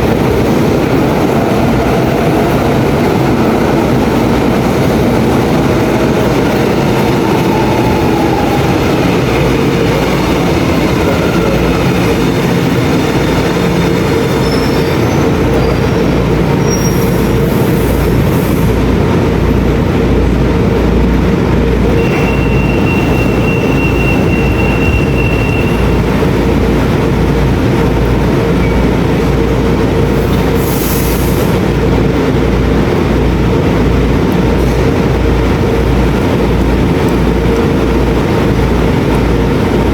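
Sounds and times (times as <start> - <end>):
train wheels rumbling on rails: 0.0 - 39.9
high wheel squeal: 13.7 - 17.5, 22.0 - 26.3.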